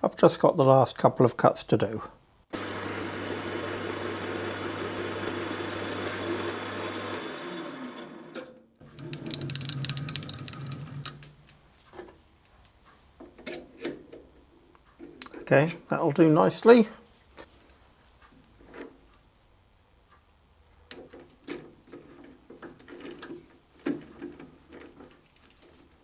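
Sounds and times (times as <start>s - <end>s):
metal lathe cutting: 2.6s - 8.4s.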